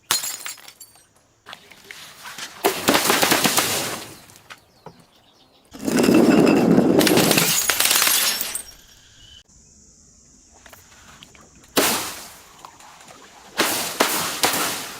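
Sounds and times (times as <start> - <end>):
glass shattering and crunching: 0.0 - 1.2, 5.8 - 9.0.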